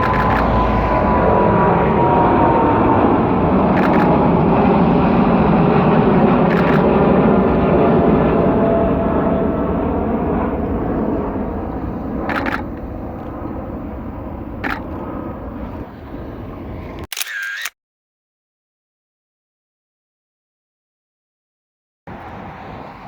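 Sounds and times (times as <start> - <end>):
camera shutter: 0.0 - 0.6, 3.8 - 4.1, 6.5 - 6.9, 12.3 - 12.7, 14.6 - 14.8, 17.0 - 17.8
jet engines roaring: 0.0 - 17.1, 22.1 - 23.0.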